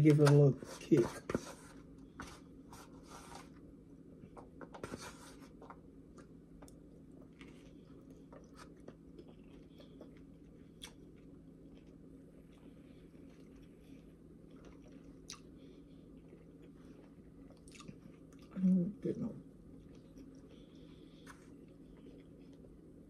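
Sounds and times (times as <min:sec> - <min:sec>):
steady low hum: 0:00.0 - 0:23.0
chewing salad: 0:05.5 - 0:18.6, 0:19.7 - 0:22.9.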